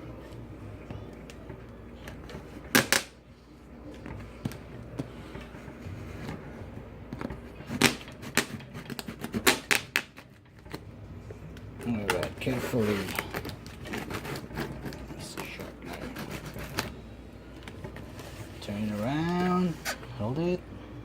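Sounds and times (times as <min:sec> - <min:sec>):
packaging rustling and clicking: 0:11.7 - 0:17.0.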